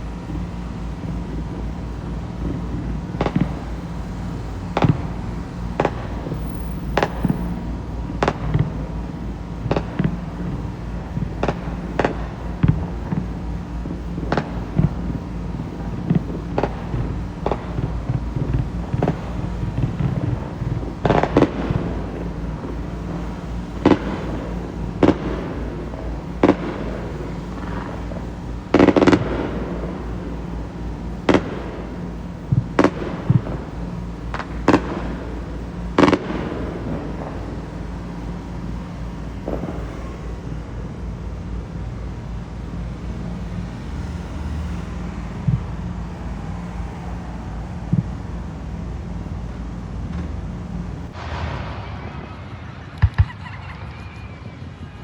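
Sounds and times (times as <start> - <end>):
fireworks bangs: 0.2 - 41.0, 51.0 - 54.6
low rumble: 1.5 - 13.2.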